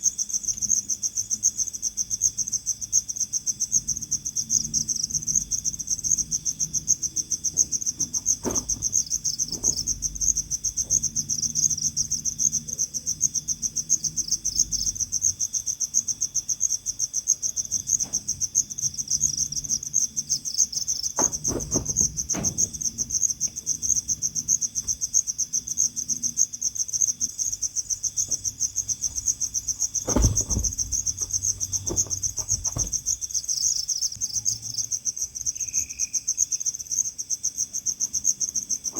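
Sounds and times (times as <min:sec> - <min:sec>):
cricket chirping: 0:00.0 - 0:38.9
knocks or rustles: 0:07.5 - 0:11.3, 0:21.1 - 0:23.6, 0:28.2 - 0:33.6.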